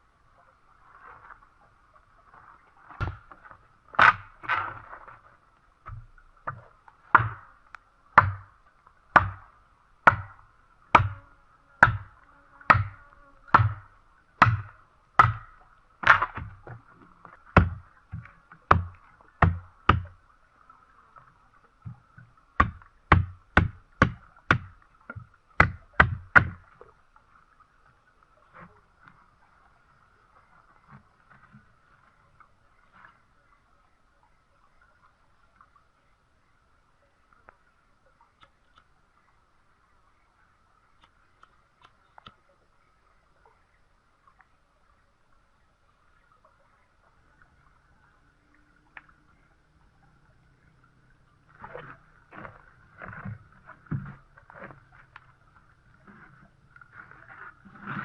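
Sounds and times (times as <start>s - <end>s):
tool striking wood: 7.1s - 7.4s, 8.2s - 8.5s, 9.2s - 9.4s, 11.0s - 11.2s, 11.8s - 12.1s, 12.7s - 13.8s, 14.4s - 15.5s, 22.6s - 24.7s.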